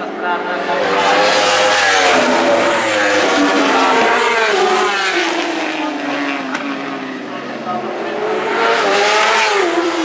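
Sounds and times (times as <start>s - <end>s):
racing motorcycles revving past: 0.8s - 7.0s.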